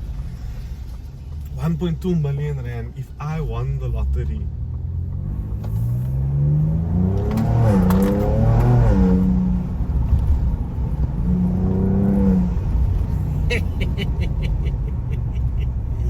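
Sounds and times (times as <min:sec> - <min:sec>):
engine accelerating hard: 0:05.1 - 0:15.6.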